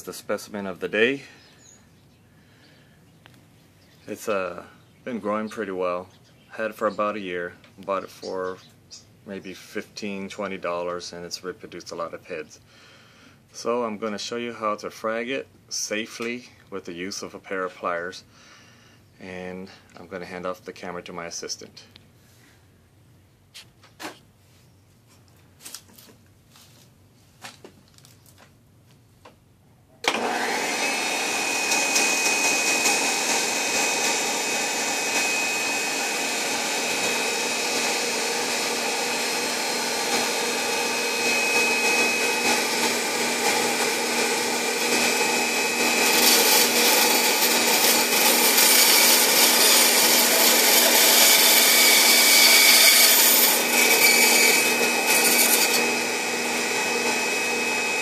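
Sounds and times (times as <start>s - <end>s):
bandsaw whining: 30.0s - 58.0s.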